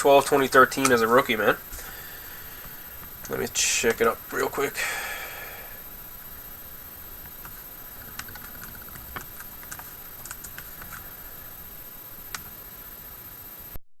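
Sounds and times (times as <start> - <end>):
computer keyboard typing: 7.2 - 11.2, 12.3 - 12.5.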